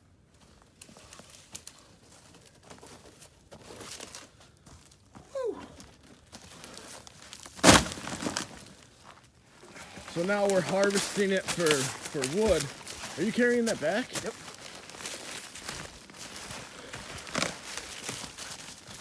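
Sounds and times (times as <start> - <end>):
crunching of snow and wood: 0.3 - 19.0.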